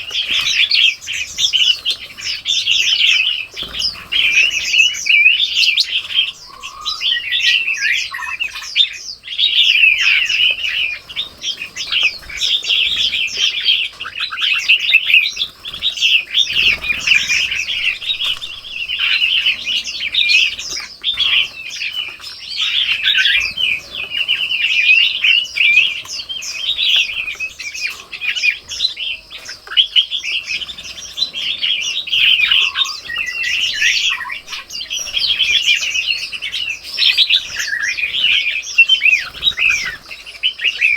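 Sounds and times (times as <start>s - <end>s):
flock of small birds chirping: 0.0s - 40.9s.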